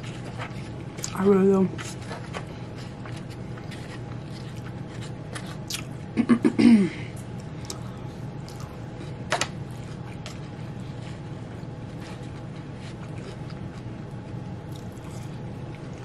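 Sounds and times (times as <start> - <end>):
low room hum: 0.0 - 16.0
chewing with mouth clicks: 1.9 - 6.0, 7.4 - 16.0.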